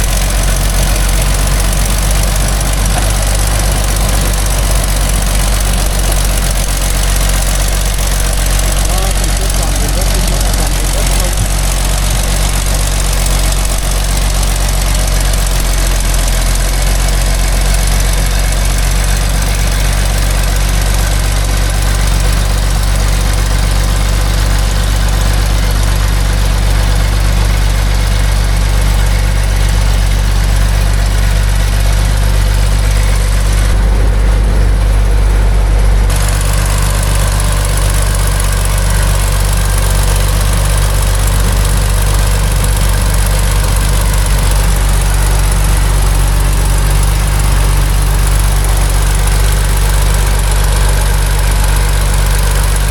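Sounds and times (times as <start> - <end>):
truck diesel engine running: 0.0 - 52.9.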